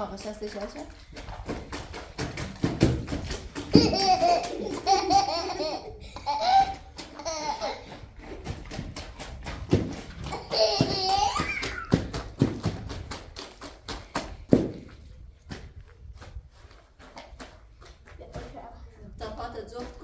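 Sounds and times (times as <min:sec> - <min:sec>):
young child laughing: 0:03.7 - 0:07.9, 0:10.3 - 0:11.9.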